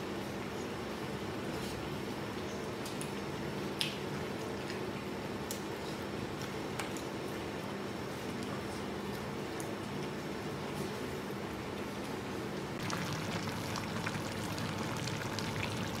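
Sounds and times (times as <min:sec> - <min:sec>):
steady low hum: 0:12.6 - 0:16.0.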